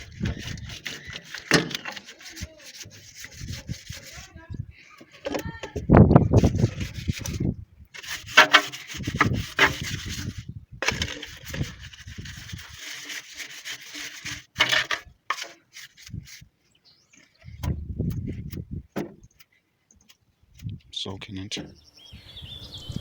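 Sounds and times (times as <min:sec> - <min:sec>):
scratchy rubbing strokes: 0:00.0 - 0:05.3, 0:06.3 - 0:16.5.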